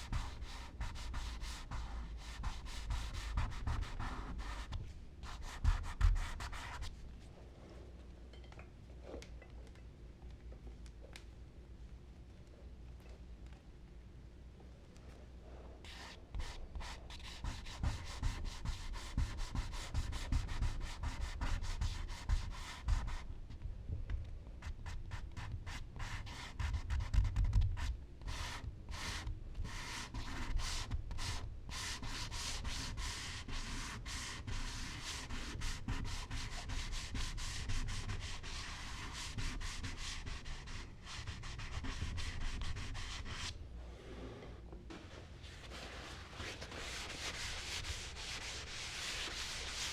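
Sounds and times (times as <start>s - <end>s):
charcoal scratching on paper: 0.0s - 6.9s, 15.8s - 23.2s, 24.6s - 43.5s.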